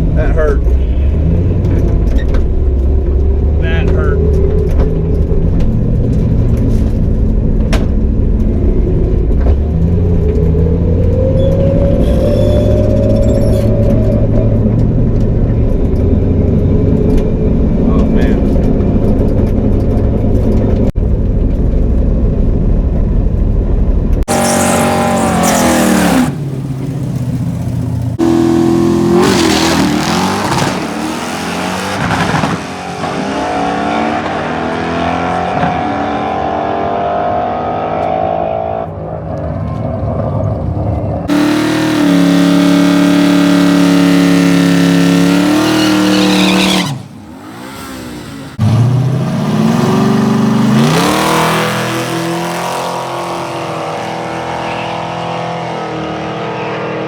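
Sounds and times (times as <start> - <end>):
engine revving through gears: 24.2 - 27.4, 28.1 - 57.0.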